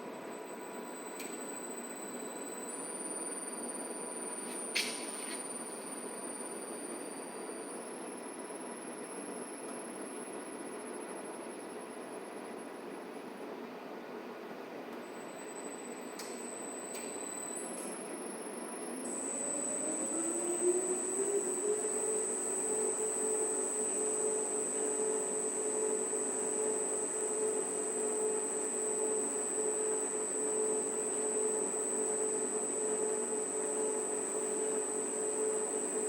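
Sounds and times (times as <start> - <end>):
high-pitched whine: 15.2 - 36.0
washing machine motor humming: 18.0 - 36.0.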